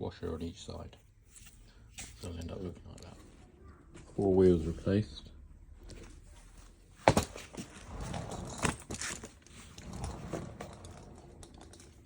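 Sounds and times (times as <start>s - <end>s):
suitcase rattling and scraping: 7.0s - 12.0s.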